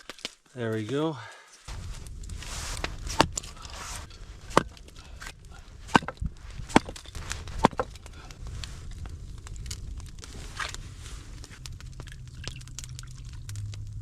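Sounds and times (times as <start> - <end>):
rustling crunch: 0.0 - 14.0
sharp knocks: 5.9 - 7.0.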